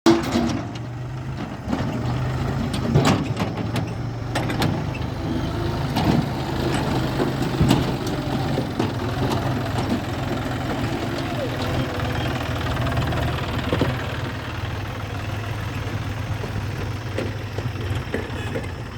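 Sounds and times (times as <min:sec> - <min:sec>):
diesel engine running: 0:00.1 - 0:18.9
metallic knocks and clanks: 0:02.6 - 0:05.0.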